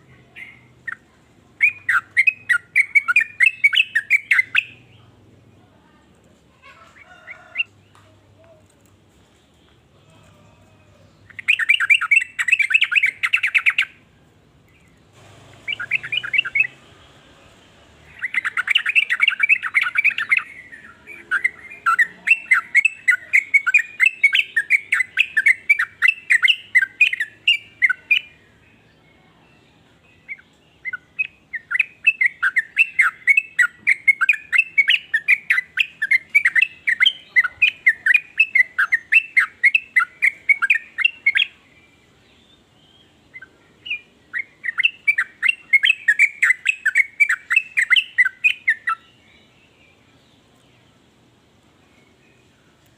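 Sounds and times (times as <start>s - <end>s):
bird chattering and calling: 0.2s - 5.0s, 11.2s - 14.0s, 15.5s - 16.8s, 18.1s - 28.4s, 30.2s - 41.6s, 43.3s - 49.1s.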